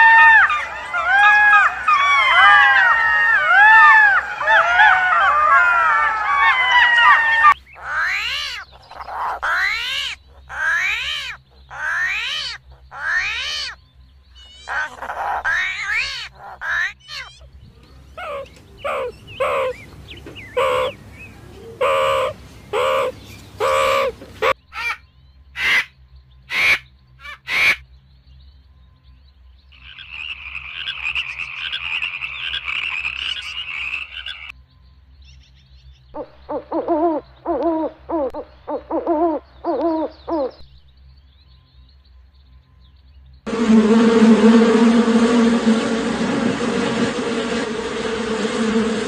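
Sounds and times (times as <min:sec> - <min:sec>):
meerkats calling: 0:00.0 - 0:13.8, 0:14.4 - 0:25.0, 0:36.2 - 0:40.6
owl hooting: 0:00.0 - 0:13.8, 0:14.4 - 0:17.5, 0:18.1 - 0:25.0, 0:36.2 - 0:40.6
frog croaking: 0:29.8 - 0:34.5.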